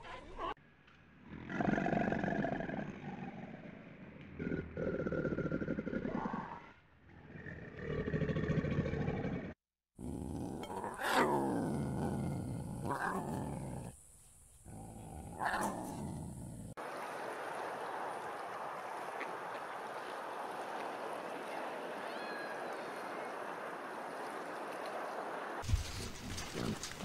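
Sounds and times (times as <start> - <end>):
open water rushing: 16.8 - 25.7.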